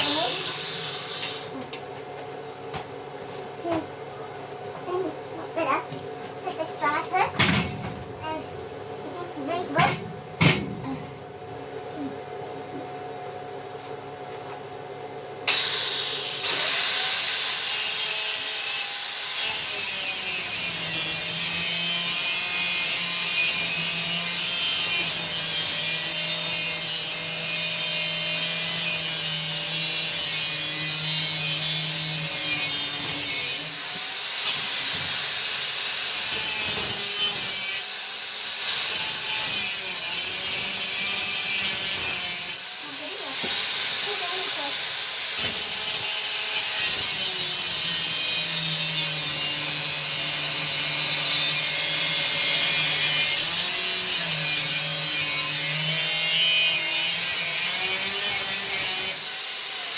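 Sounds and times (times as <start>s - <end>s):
power tool cutting: 0.0s - 1.8s, 15.5s - 59.9s.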